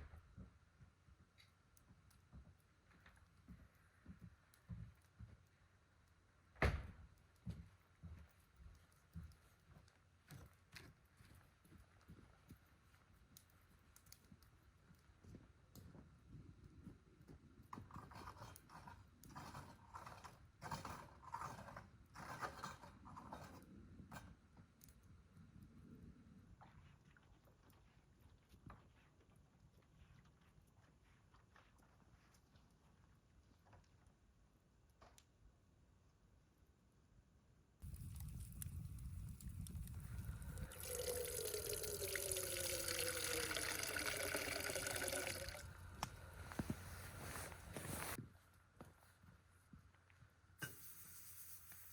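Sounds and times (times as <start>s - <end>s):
faint scraping and rustling: 16.8s - 24.8s, 25.4s - 34.2s, 45.5s - 51.9s
water pouring into a vessel: 37.8s - 45.8s.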